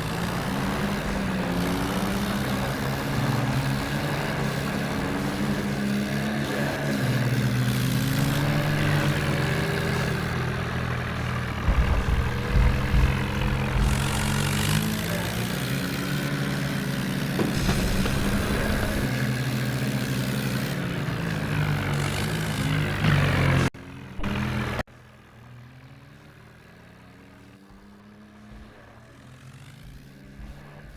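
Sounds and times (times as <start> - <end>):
tractor engine running: 0.0 - 30.9
low thuds: 11.3 - 14.7, 17.4 - 19.2.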